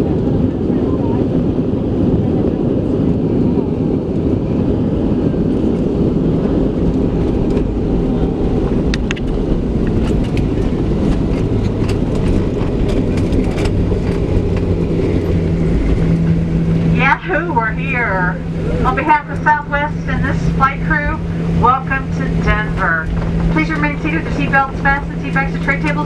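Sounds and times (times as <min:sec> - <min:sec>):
low rumble of engines and wheels: 0:00.0 - 0:26.0
steady low hum: 0:00.0 - 0:26.0
light clicks in cabin: 0:08.9 - 0:15.4, 0:22.7 - 0:26.0.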